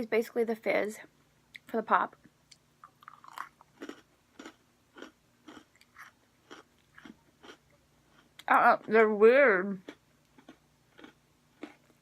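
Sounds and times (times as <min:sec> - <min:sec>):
cookie chewing crunch: 0:02.5 - 0:09.0, 0:09.8 - 0:12.0.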